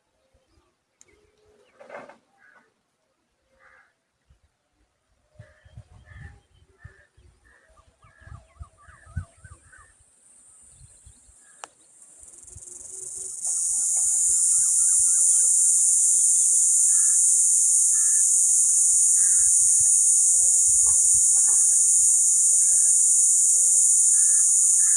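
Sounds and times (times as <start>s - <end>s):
insects buzzing: 10.2s - 24.9s
bird chirps: 10.6s - 24.9s.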